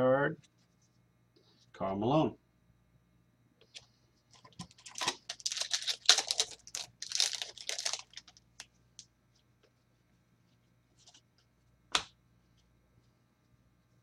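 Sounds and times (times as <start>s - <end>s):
foil wrapper tearing and crinkling: 4.6s - 8.7s.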